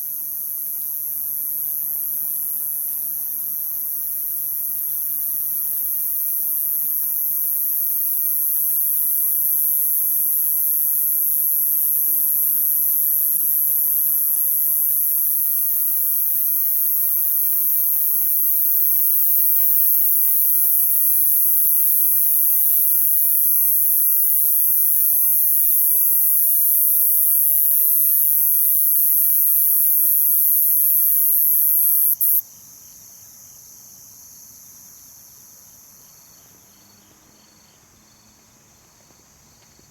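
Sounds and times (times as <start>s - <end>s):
lower cricket trilling: 0.0s - 33.6s
crickets high-pitched trill: 5.7s - 32.4s.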